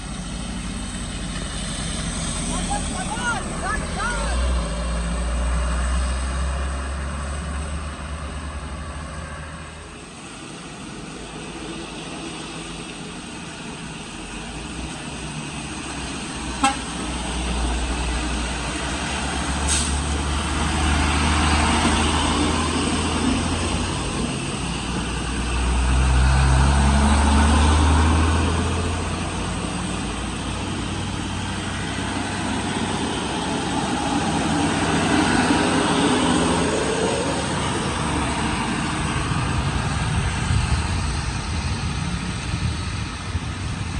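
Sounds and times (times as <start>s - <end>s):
truck engines labouring: 0.0s - 43.9s
vehicle horn tooting: 16.6s - 16.9s.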